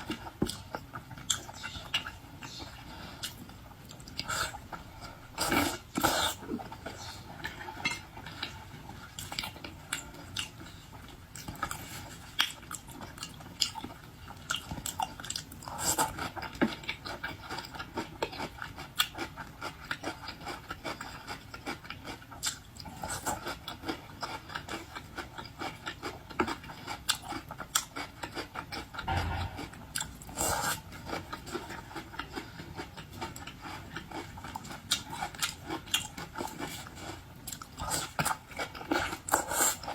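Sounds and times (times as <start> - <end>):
chewing seafood: 0.0 - 39.9.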